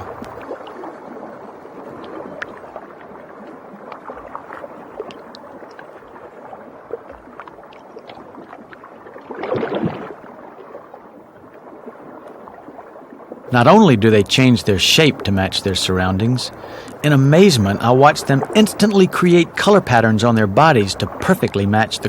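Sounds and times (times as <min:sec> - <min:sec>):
small underwater clicks: 0:00.0 - 0:00.9, 0:01.9 - 0:10.2, 0:16.5 - 0:17.0
water gurgling: 0:00.0 - 0:22.0.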